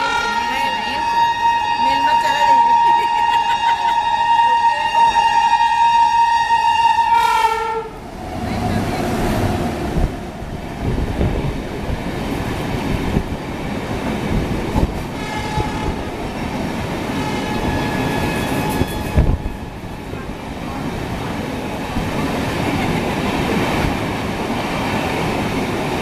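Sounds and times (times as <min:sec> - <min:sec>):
train horn: 0:00.0 - 0:08.0, 0:15.2 - 0:16.1, 0:17.2 - 0:19.8
train rushing past: 0:00.0 - 0:26.0.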